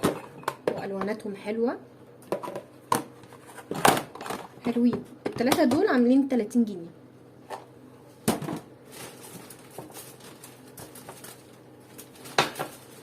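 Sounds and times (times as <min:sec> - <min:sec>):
household items knocking and clattering: 0:00.0 - 0:01.1, 0:08.2 - 0:08.7, 0:12.2 - 0:13.0.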